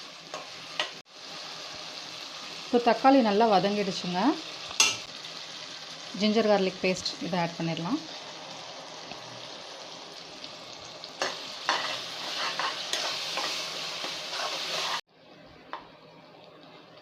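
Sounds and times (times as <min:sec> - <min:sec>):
food sizzling in oil: 0:00.0 - 0:15.1
spoon scraping pan: 0:11.2 - 0:15.0.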